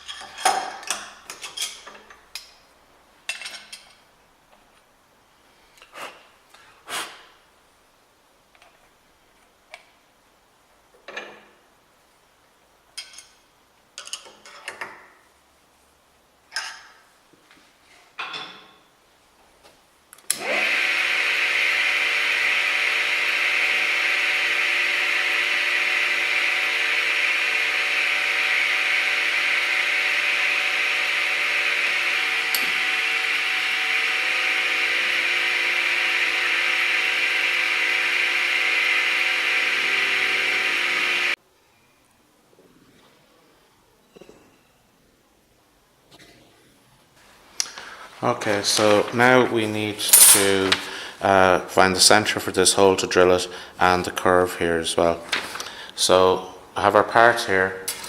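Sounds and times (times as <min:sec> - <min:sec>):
power tool running: 0:20.3 - 0:41.4, 0:50.1 - 0:51.1.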